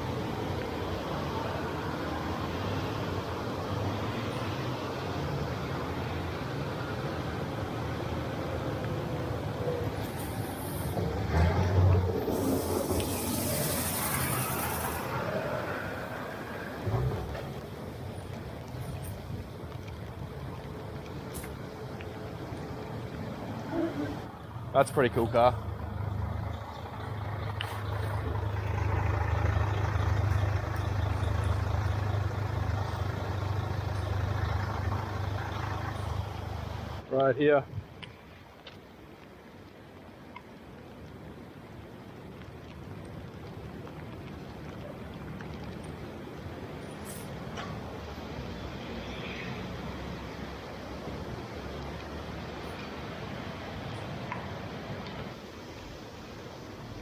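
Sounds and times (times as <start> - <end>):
vehicle engine droning: 0.0 - 37.0
hiss of wet road and rain: 0.0 - 57.0
traffic rumble: 0.0 - 57.0.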